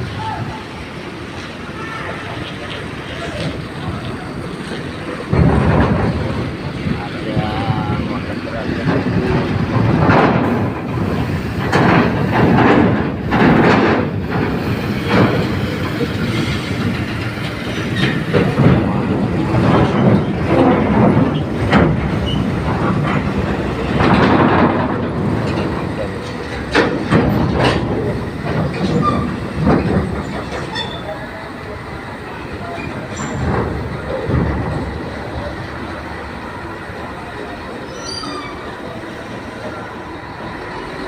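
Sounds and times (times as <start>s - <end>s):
diesel truck engines: 0.0s - 41.0s
metallic clanks and rattles: 8.7s - 31.2s.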